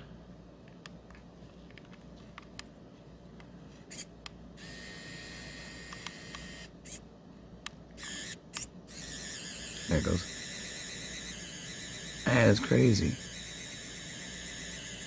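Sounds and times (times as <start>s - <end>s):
small motor whirring: 3.9s - 7.0s, 8.0s - 15.0s.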